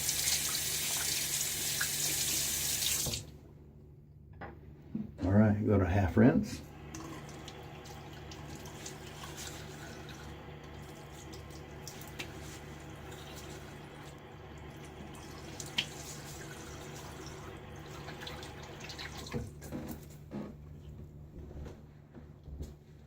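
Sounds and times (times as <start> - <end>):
water dripping: 0.0 - 3.2
tap water running into sink: 0.0 - 3.3, 6.8 - 19.6.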